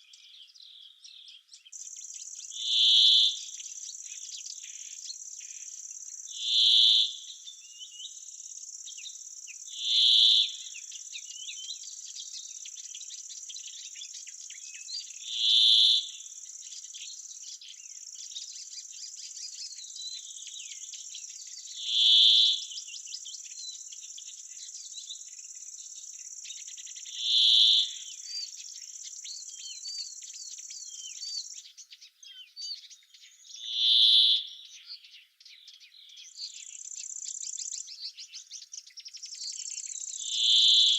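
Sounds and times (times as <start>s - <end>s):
faint bird twitters: 0.0s - 40.9s.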